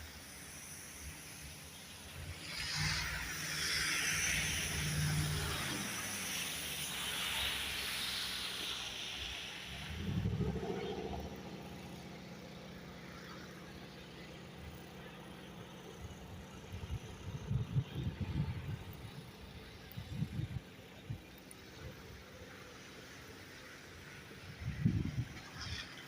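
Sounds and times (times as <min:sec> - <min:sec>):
car tyres hissing: 0:00.0 - 0:26.0
low engine rumble: 0:09.4 - 0:26.0.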